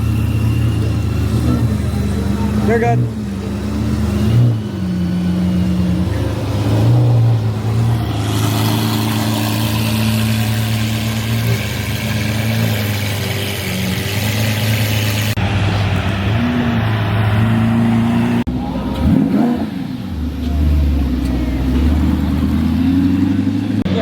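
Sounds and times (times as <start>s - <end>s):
car engine running: 0.0s - 24.0s
road and tyre noise: 0.0s - 24.0s.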